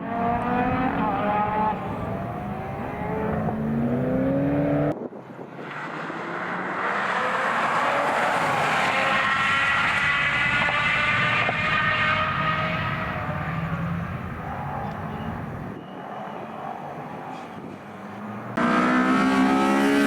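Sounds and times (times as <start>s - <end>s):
rally car engine accelerating: 0.0s - 5.0s, 18.2s - 20.0s.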